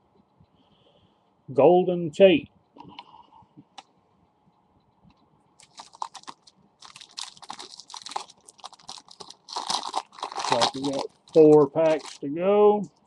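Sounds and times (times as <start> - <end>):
cards and packaging rustling: 5.6 - 12.3.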